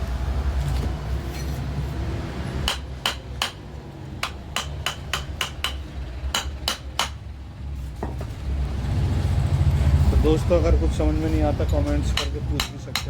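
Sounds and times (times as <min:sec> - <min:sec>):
hammer tapping on metal: 0:02.6 - 0:07.2, 0:11.9 - 0:13.0.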